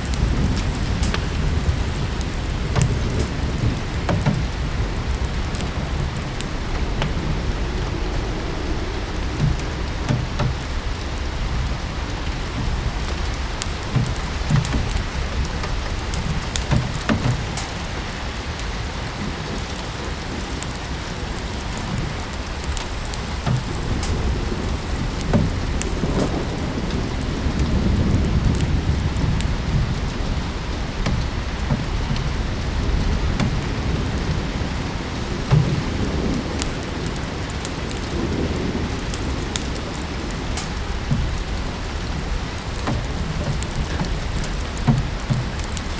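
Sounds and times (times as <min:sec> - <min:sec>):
low rumble: 0:00.0 - 0:17.6
steady rain falling: 0:00.0 - 0:45.9
wood fire crackling: 0:00.0 - 0:45.9.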